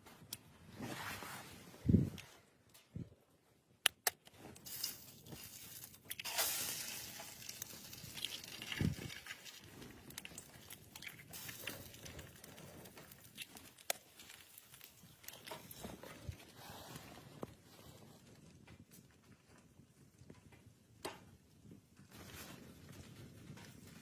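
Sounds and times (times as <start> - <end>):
rustling and crunching handling: 4.2 - 19.0.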